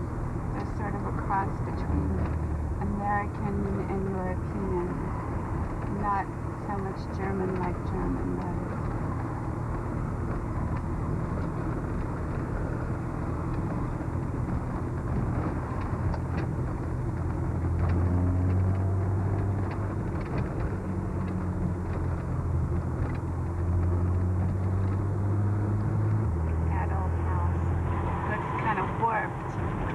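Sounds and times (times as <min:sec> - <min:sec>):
car engine hum: 0:00.0 - 0:29.9
road noise: 0:00.0 - 0:29.9.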